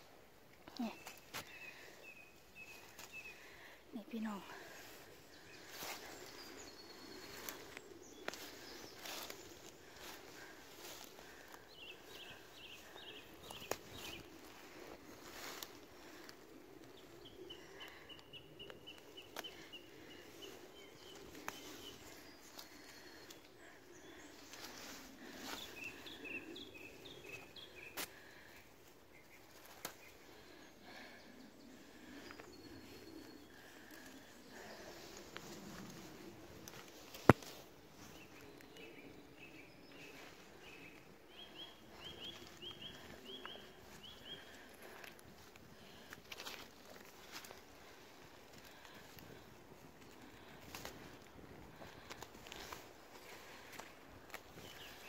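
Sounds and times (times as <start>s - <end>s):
plant stems snapping: 13.6s - 13.9s.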